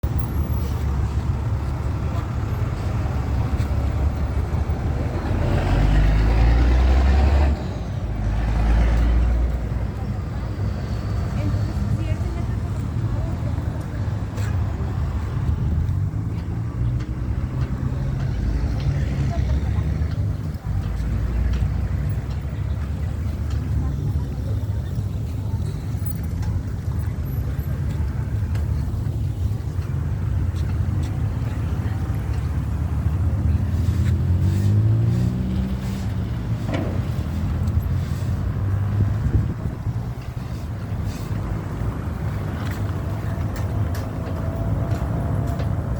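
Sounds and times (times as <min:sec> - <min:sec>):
vehicle engine rumbling: 0:00.0 - 0:45.9.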